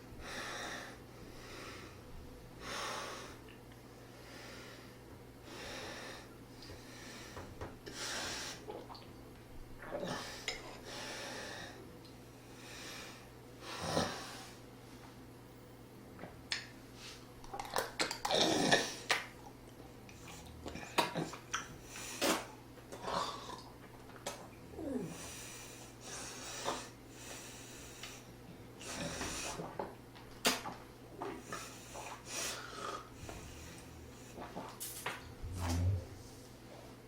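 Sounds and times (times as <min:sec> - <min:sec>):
person breathing while eating: 0:00.2 - 0:08.7, 0:10.0 - 0:14.6, 0:24.9 - 0:29.7, 0:31.3 - 0:36.5.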